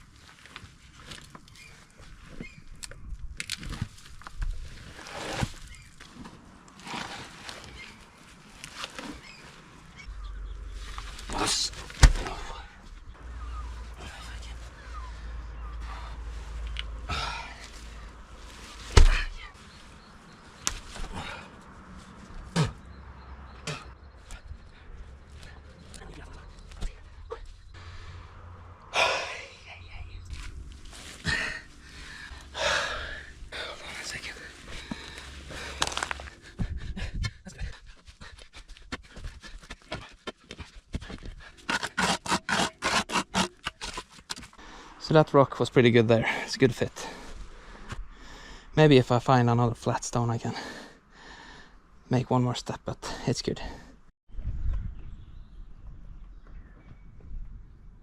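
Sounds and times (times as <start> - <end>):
stones thumping and scraping: 11.0 - 12.6, 18.8 - 19.4, 34.8 - 36.4, 39.1 - 44.6
person panting: 31.2 - 33.8, 34.6 - 41.6.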